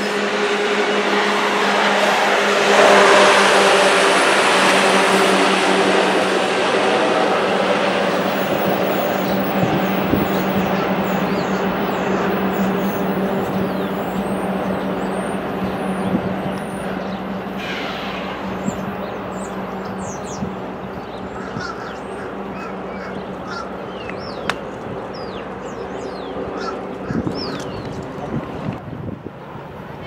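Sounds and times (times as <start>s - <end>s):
train rumble: 0.0s - 30.0s.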